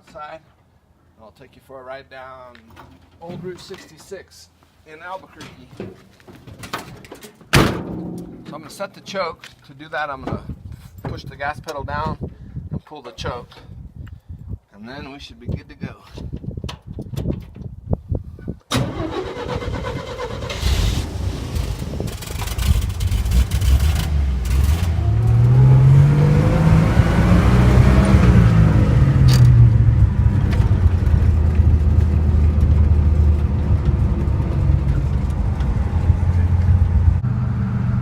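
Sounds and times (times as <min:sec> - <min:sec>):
pickup truck engine cold start: 0:18.7 - 0:25.2
engine revving: 0:18.9 - 0:38.0.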